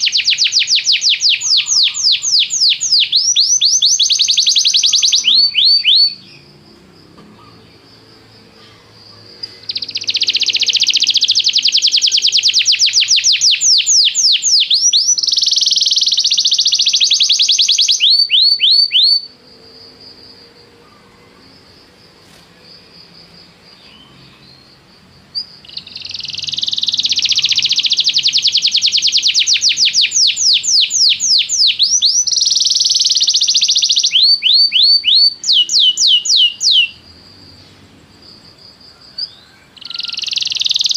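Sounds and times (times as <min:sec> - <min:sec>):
canary singing trills: 0:00.0 - 0:21.7, 0:22.8 - 0:40.9.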